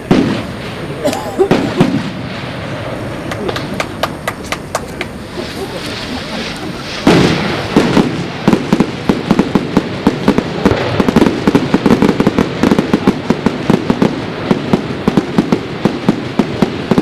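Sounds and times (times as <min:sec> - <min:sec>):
fireworks bangs and pops: 0:00.0 - 0:17.0
fireworks crackle: 0:00.0 - 0:17.0.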